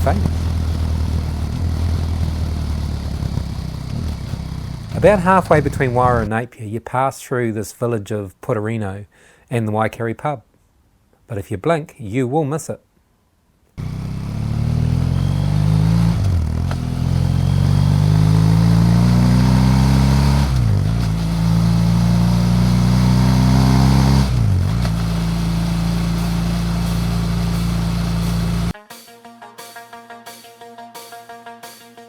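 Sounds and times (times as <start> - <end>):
motorcycle engine accelerating: 0.0 - 6.3, 13.8 - 28.8.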